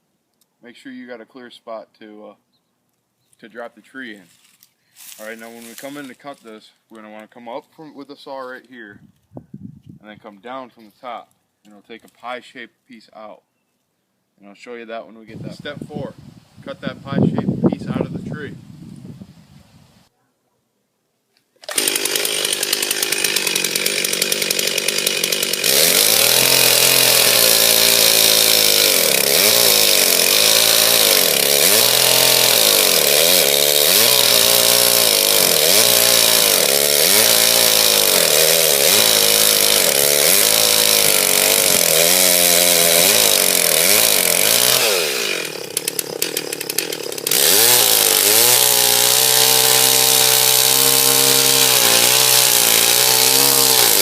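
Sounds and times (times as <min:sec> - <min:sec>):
chainsaw cutting wood: 0:21.6 - 0:54.0.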